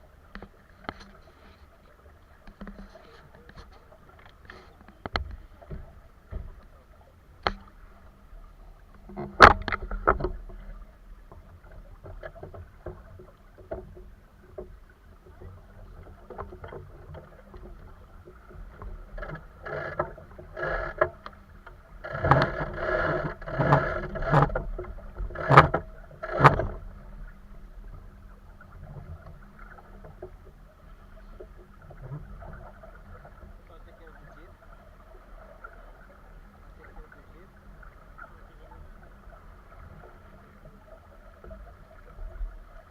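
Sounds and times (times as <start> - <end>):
water against hull: 0.0 - 42.9
splashes and knocks: 2.3 - 6.8, 7.4 - 8.1, 8.9 - 30.6.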